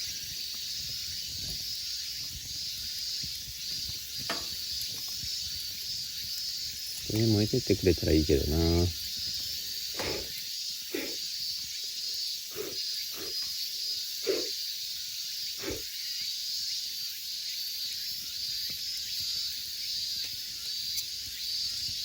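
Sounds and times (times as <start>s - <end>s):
short fire crackles: 0.0s - 7.2s
campfire hissing: 0.0s - 22.0s.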